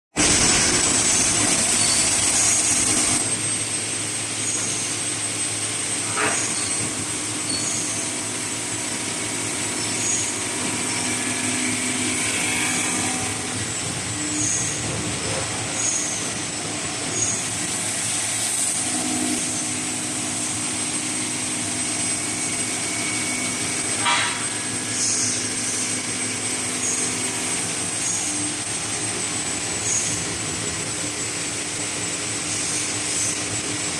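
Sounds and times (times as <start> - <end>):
grinding machine running: 0.2 - 33.9.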